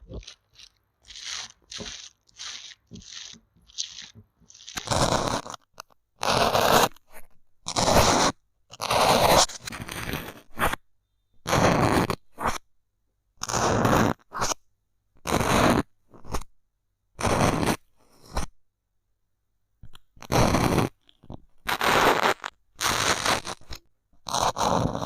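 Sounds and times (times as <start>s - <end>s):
bamboo stick scraping microphone: 0.0s - 10.8s, 21.7s - 25.0s.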